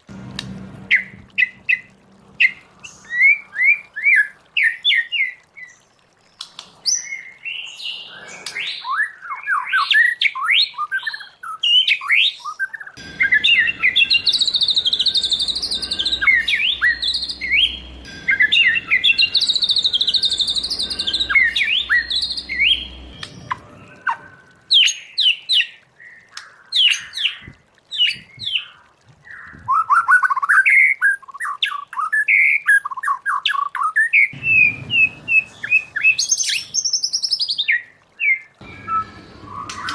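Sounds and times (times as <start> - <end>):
low background rumble: 0.0 - 4.6, 13.0 - 24.7, 34.4 - 36.9
bird singing whistled song: 6.8 - 26.2, 28.0 - 39.9.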